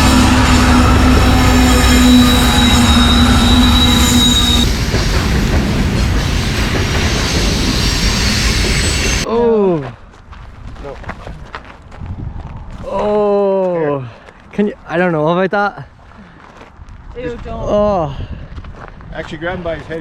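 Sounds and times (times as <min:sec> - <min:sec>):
steady tone: 0:00.0 - 0:09.3
train wheels rumbling on rails: 0:00.0 - 0:09.3.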